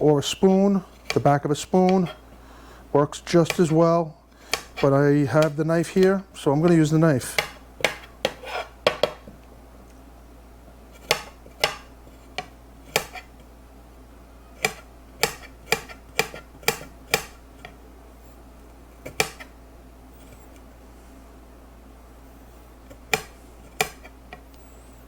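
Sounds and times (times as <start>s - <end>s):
knife knocking on cutting board: 7.4s - 9.3s.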